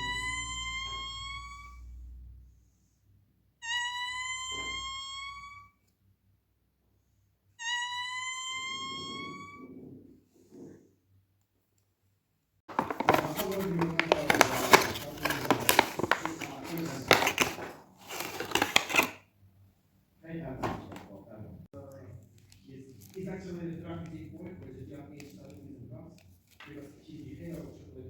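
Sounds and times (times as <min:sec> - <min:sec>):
rustling and clattering: 0:12.7 - 0:19.2.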